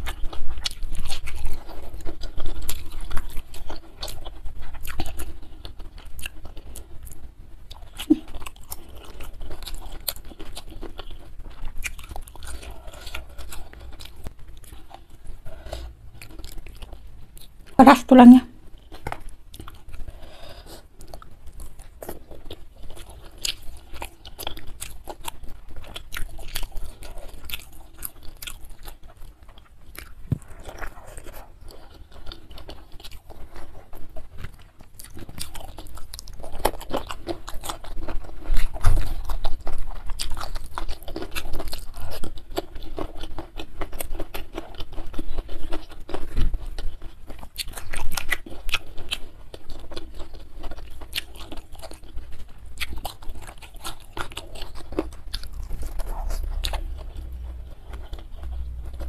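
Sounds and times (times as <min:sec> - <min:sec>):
chewing crunchy fried fish: 0:00.0 - 0:59.0.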